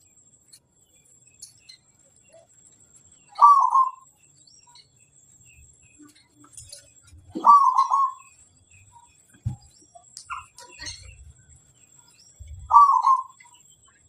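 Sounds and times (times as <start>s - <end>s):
dove cooing: 3.4s - 4.0s, 7.3s - 8.3s, 12.6s - 13.4s.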